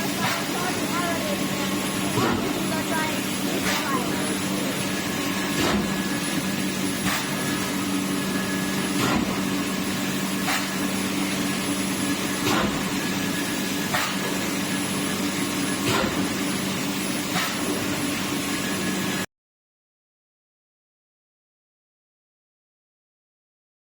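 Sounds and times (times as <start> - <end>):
machinery hum and hiss: 0.0 - 19.3
sharp machine knock: 2.0 - 2.7, 8.8 - 9.4.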